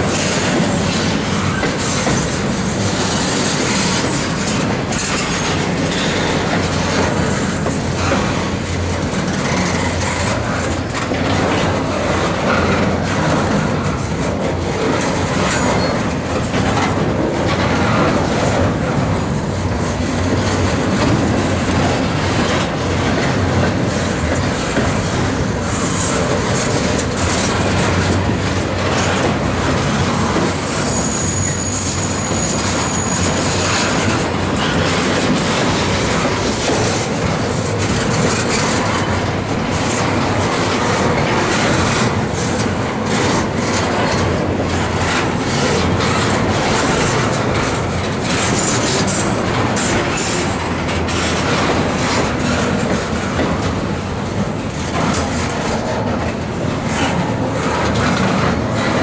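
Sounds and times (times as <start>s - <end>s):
train wheels clacking on rails: 0.0s - 59.0s
high-pitched wheel squeal: 30.4s - 34.2s.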